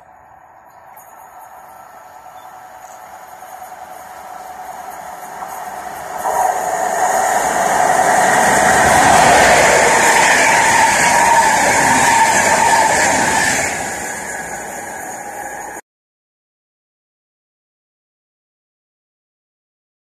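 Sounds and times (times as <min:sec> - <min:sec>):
passenger train passing: 0:00.0 - 0:15.8.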